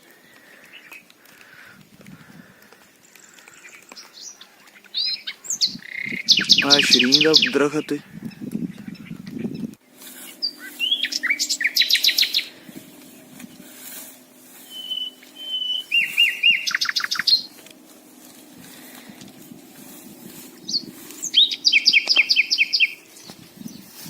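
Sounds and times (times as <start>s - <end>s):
songbird whistling and trilling: 3.6s - 7.5s, 8.3s - 13.0s, 14.6s - 17.6s, 20.6s - 24.0s.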